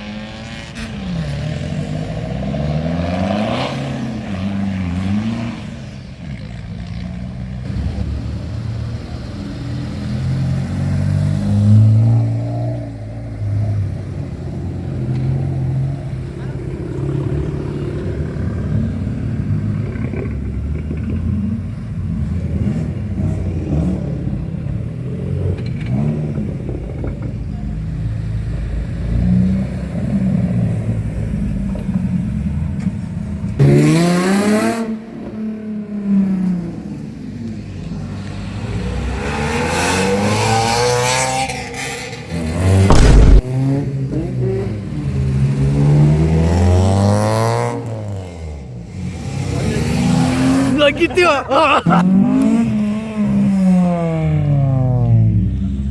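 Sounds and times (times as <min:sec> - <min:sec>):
car engines revving: 0:00.0 - 0:55.9
loud bang: 0:42.9 - 0:43.7.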